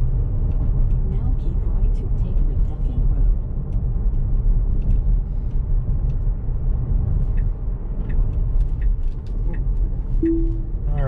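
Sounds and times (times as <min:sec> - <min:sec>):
road and tyre rumble: 0:00.0 - 0:11.0
faint light ticks: 0:07.3 - 0:09.9.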